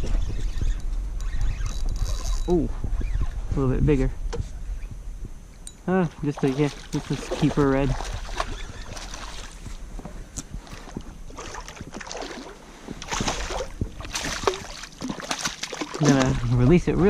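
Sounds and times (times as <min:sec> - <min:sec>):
water splashing: 0:06.0 - 0:09.8, 0:11.3 - 0:17.0.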